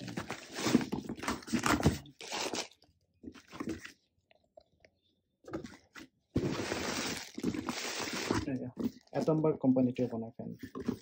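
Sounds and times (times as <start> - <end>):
cardboard packaging crunching: 0.0 - 2.8, 6.4 - 8.6.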